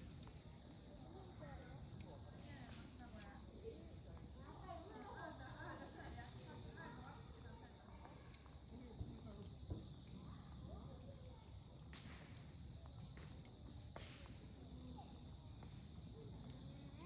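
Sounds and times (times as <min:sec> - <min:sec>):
insects chirping: 0:00.0 - 0:17.0
campfire crackling pops: 0:11.8 - 0:14.8.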